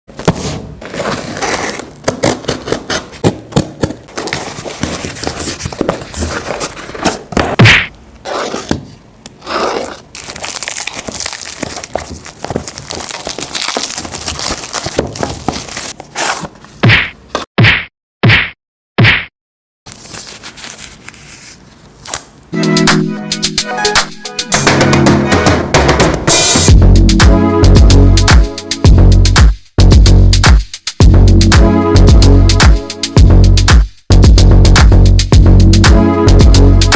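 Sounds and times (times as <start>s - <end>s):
packaging rustling: 0.2s - 7.4s, 9.4s - 16.7s.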